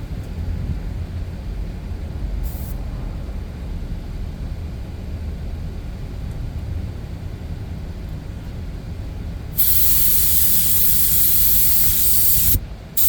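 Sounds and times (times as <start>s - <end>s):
low rumble: 0.0s - 9.6s
spray gun hissing: 2.4s - 2.8s, 9.6s - 13.0s.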